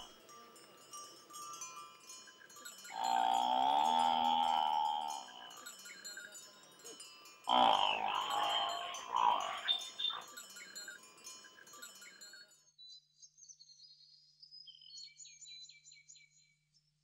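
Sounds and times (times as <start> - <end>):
small bells tinkling: 0.0 - 12.8
loud drawn-out call: 2.9 - 5.6, 7.5 - 10.3.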